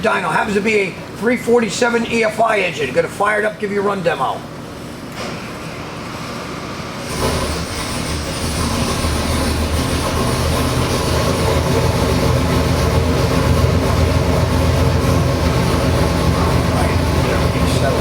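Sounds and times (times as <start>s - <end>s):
engine running on dyno: 5.2s - 18.0s.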